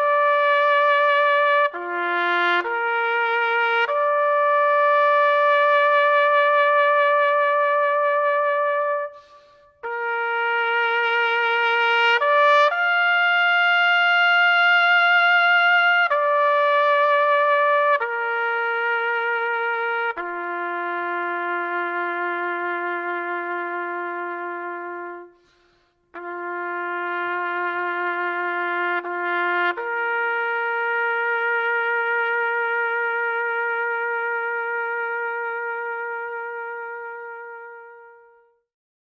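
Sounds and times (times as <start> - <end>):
trumpet playing long notes: 0.0 - 38.6.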